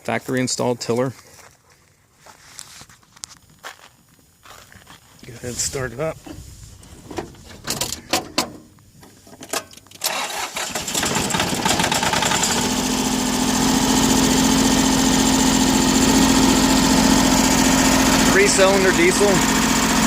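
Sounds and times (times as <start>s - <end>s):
diesel engine starting and running: 9.9s - 20.0s.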